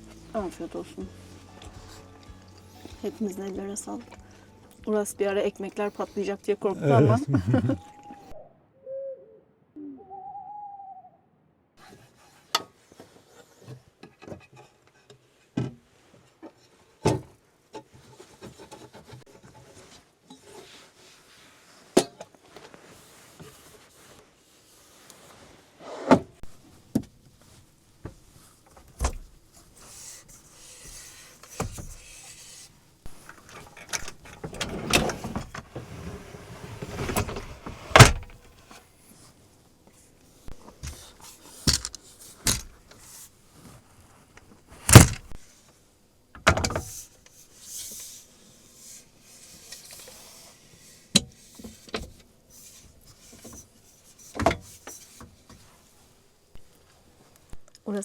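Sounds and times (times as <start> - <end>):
rustling and clattering: 11.8 - 45.8.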